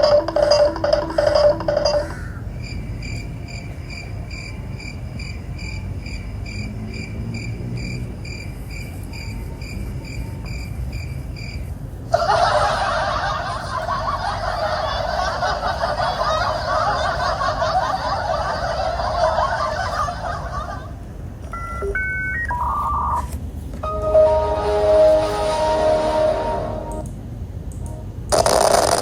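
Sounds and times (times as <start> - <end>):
low steady rumble: 10.4 - 28.3
snickering laugh: 12.1 - 21.0.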